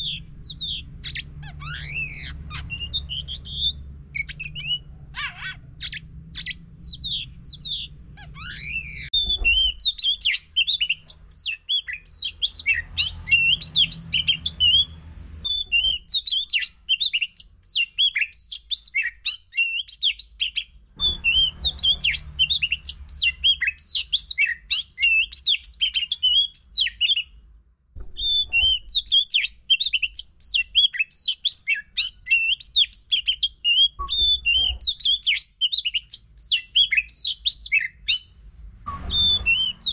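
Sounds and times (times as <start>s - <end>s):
low rumble: 0.0s - 10.2s, 21.0s - 23.6s, 38.4s - 39.9s
bird singing chirps and whistles: 0.0s - 27.4s, 28.0s - 39.9s.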